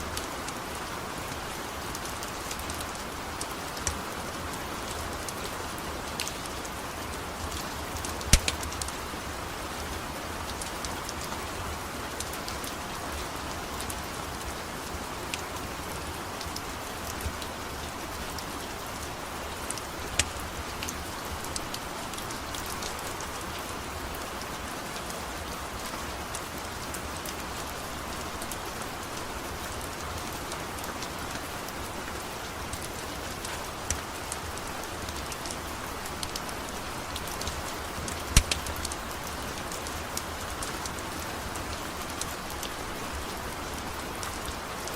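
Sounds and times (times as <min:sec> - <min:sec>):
rain falling on a surface: 0:00.0 - 0:44.9
sharp clicks: 0:08.2 - 0:08.7, 0:38.4 - 0:39.0.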